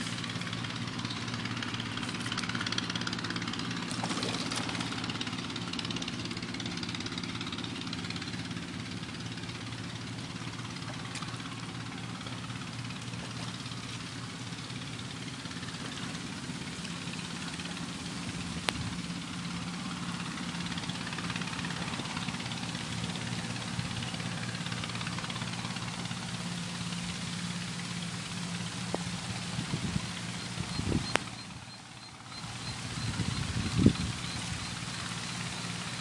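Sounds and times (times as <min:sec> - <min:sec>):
low engine-like hum: 0:00.0 - 0:36.0
heavy rain falling on water: 0:08.6 - 0:36.0.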